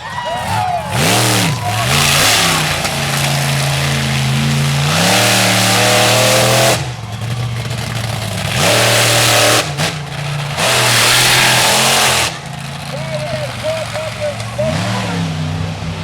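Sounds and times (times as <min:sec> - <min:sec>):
truck engine revving hard: 0:00.0 - 0:16.0.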